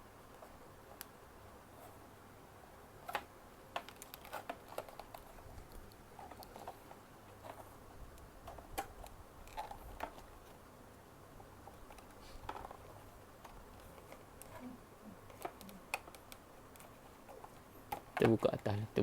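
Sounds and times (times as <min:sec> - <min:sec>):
plastic packaging clicks and rustles: 0:03.0 - 0:07.7, 0:08.4 - 0:10.6.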